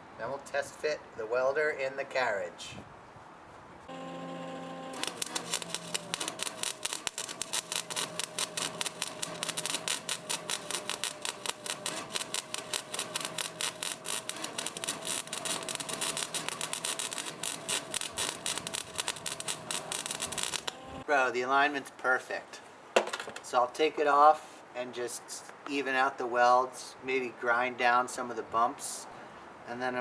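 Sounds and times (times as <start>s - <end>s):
welding arc crackling: 3.9s - 21.0s.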